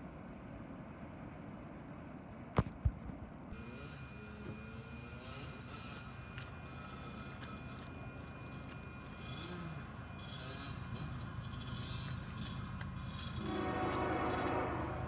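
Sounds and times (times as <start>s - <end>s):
diesel locomotives rumbling: 3.1s - 15.0s.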